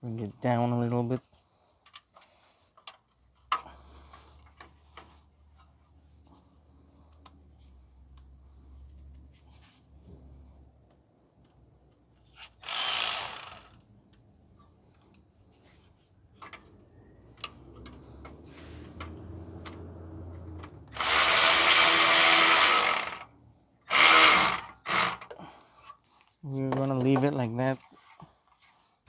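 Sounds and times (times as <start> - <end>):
power tool bursts: 12.6 - 13.8, 20.9 - 23.3, 23.9 - 25.3.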